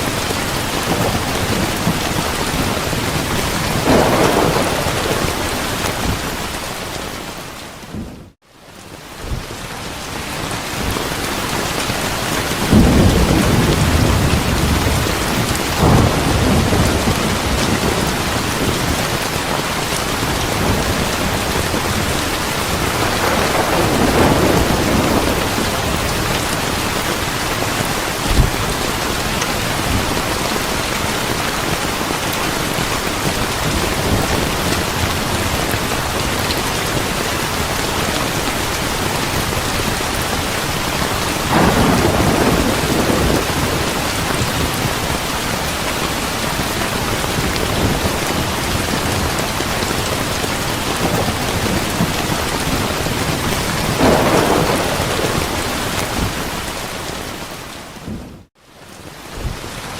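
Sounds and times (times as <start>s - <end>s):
heavy rain: 0.0s - 59.9s
thunder rolling: 0.1s - 7.2s, 12.4s - 31.8s, 39.3s - 45.2s, 46.6s - 58.5s.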